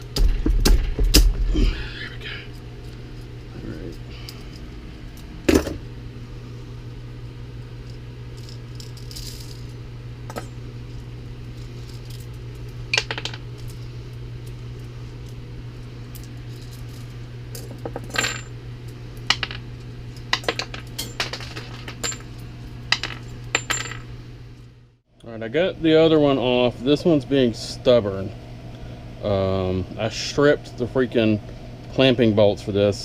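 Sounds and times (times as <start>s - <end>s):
steady low hum: 0.0s - 33.0s
metal parts clinking on workbench: 13.0s - 13.7s, 17.6s - 18.5s, 20.3s - 22.3s, 22.9s - 24.0s.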